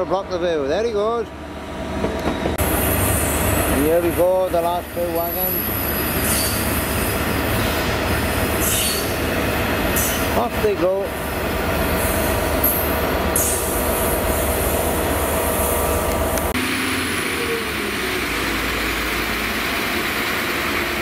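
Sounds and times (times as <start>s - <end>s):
diesel train running past: 0.0s - 21.0s
freight train rumbling: 0.0s - 21.0s
train wheel squeals: 4.6s - 9.3s, 9.9s - 10.4s, 12.0s - 14.5s.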